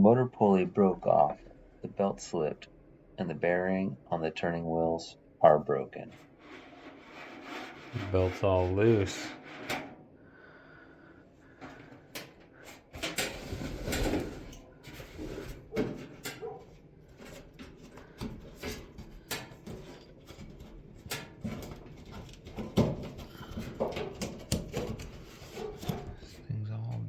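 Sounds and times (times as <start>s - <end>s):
metal parts knocking and rubbing: 6.1s - 10.0s, 11.6s - 26.4s.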